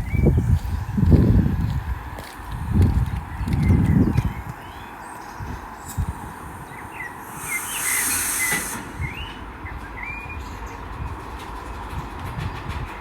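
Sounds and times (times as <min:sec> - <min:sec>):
train humming: 0:00.0 - 0:13.0
birds chirping: 0:03.3 - 0:11.4
air hiss: 0:05.8 - 0:09.7.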